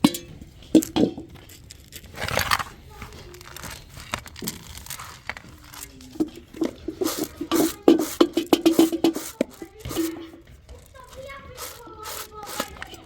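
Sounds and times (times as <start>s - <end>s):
pots and utensils clinking: 0.0s - 13.0s.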